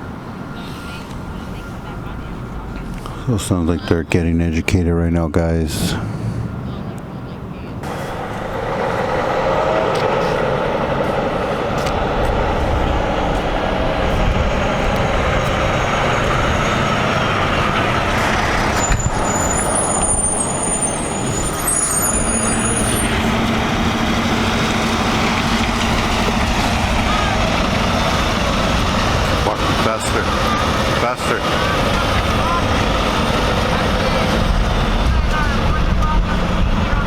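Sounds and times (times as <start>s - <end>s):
truck engine hum: 0.0s - 37.0s
brake squeal: 7.6s - 37.0s.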